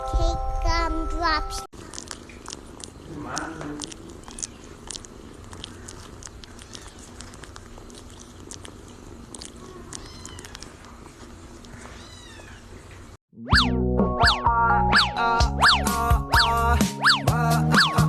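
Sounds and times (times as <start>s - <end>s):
cat meowing faintly: 9.6s - 10.8s, 11.7s - 12.7s
loud music with boing effects: 13.4s - 18.0s.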